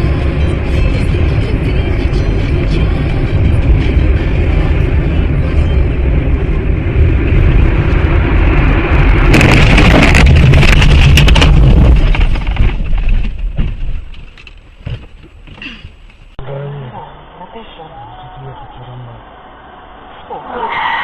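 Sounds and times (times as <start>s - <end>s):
moving car rumble: 0.0s - 21.0s
car crash impacts: 9.1s - 16.3s.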